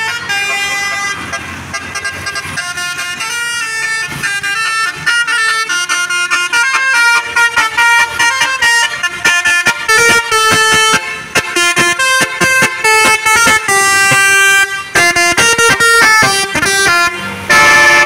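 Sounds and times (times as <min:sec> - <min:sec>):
musical air horn tune: 0:00.0 - 0:18.0.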